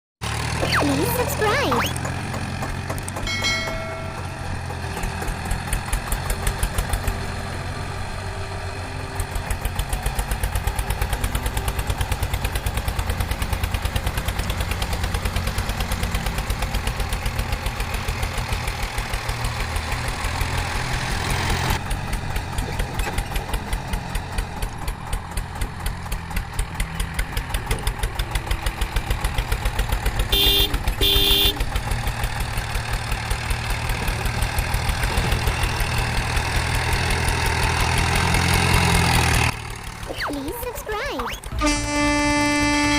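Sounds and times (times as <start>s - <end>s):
diesel engine idling: 0.2s - 42.9s
short high beeps: 0.6s - 2.0s.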